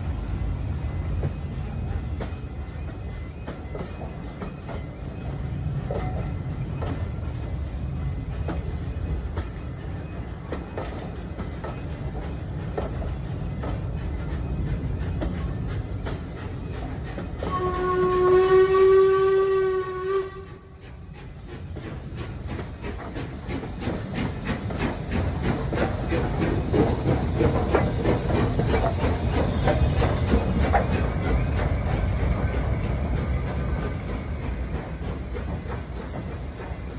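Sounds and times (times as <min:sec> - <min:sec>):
train running rhythmic clatter: 0:00.0 - 0:36.9
steam locomotive whistle: 0:17.4 - 0:20.8.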